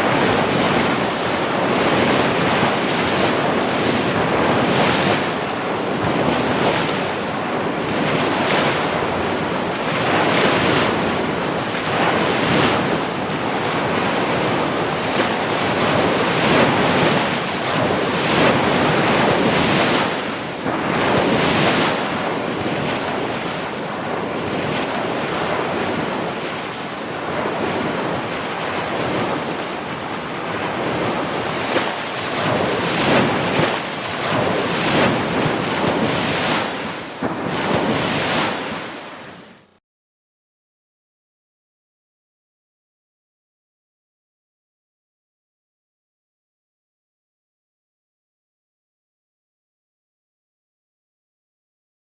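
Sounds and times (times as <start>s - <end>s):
wind buffeting microphone: 0.0s - 39.5s
waves breaking: 0.0s - 39.7s.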